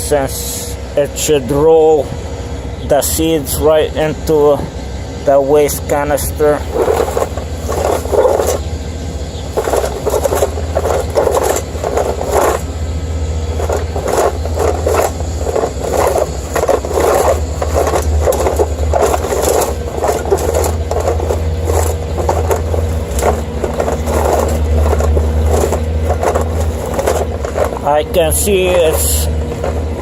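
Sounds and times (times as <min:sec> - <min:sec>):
construction machinery drone: 0:00.0 - 0:30.0
carpet sweeper brush scraping grass: 0:05.8 - 0:08.7, 0:09.3 - 0:30.0.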